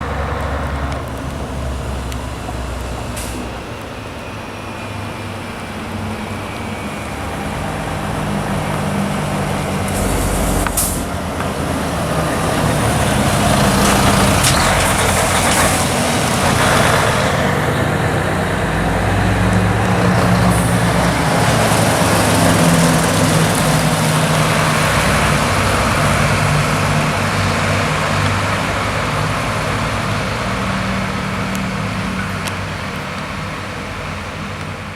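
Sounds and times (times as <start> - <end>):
fire truck diesel engines passing: 0.0 - 34.9
air brakes hissing: 3.0 - 3.8, 9.7 - 11.2.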